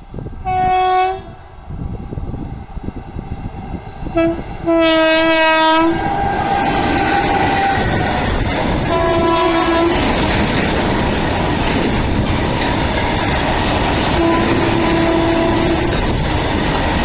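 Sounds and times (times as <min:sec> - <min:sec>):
train wheels rumbling on rail: 0:00.0 - 0:17.0
train horn blasts: 0:00.4 - 0:01.4, 0:04.1 - 0:08.0, 0:08.8 - 0:10.2, 0:14.1 - 0:15.9.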